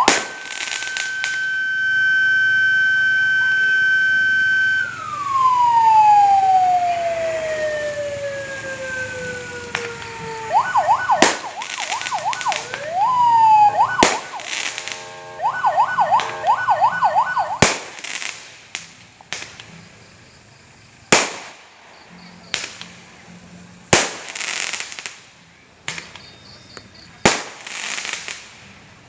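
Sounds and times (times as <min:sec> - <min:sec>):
warbling firework whistles: 0:00.0 - 0:19.6
firework bangs: 0:00.0 - 0:19.8, 0:21.1 - 0:21.9, 0:22.5 - 0:23.0, 0:23.9 - 0:25.3, 0:27.2 - 0:28.8
whistling fireworks: 0:00.0 - 0:29.0.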